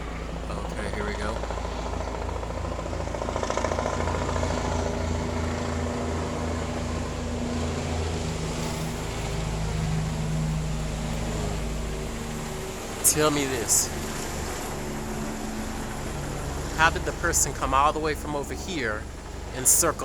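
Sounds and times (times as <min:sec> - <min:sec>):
helicopter flying overhead: 0:00.0 - 0:20.0.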